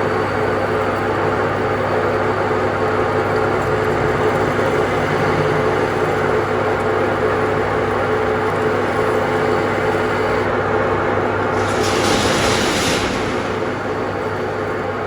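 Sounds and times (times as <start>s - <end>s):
machine humming and whirring: 11.6s - 15.0s.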